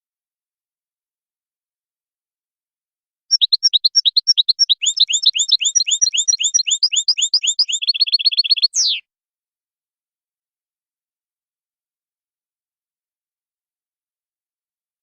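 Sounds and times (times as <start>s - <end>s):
goldfinch singing: 3.3s - 9.0s.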